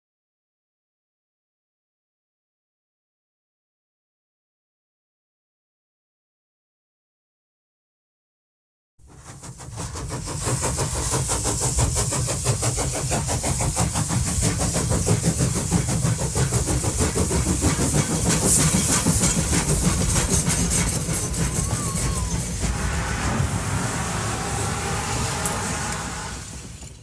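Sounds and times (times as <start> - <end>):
train chugging: 9.0 - 27.0.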